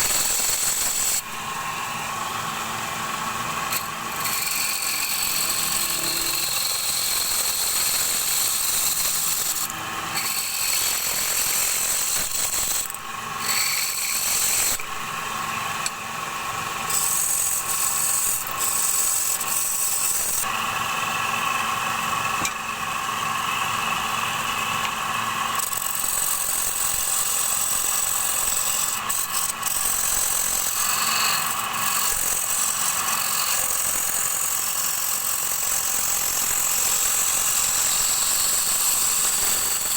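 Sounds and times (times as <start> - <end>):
wood lathe running: 0.1 - 22.3, 25.5 - 39.9
turning tool scraping wood: 3.7 - 12.8.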